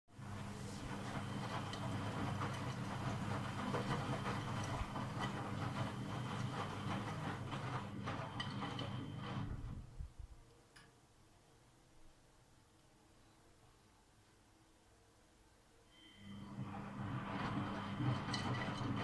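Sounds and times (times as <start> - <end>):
washing machine motor hum: 0.1 - 10.2, 16.2 - 19.0.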